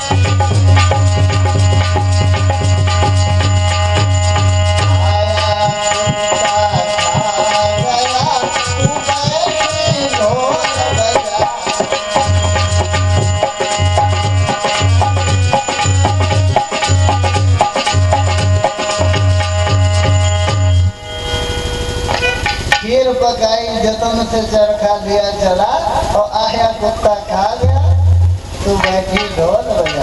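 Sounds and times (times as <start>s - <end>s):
hand drum rhythm: 0.0s - 21.0s, 27.6s - 30.0s
wavering melodic line: 0.0s - 24.3s
sustained melody tones: 0.0s - 25.2s, 26.0s - 30.0s.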